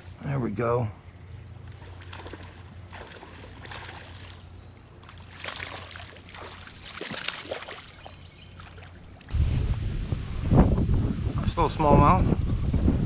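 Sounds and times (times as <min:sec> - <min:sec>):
steady low hum: 0:00.0 - 0:13.0
water splashing: 0:01.6 - 0:09.4.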